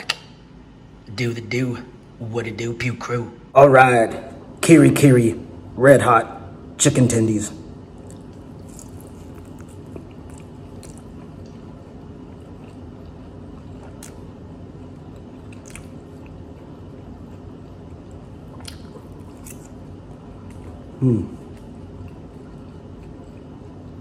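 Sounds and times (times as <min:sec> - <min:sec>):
person chewing wet mouth sounds: 0:08.0 - 0:24.0.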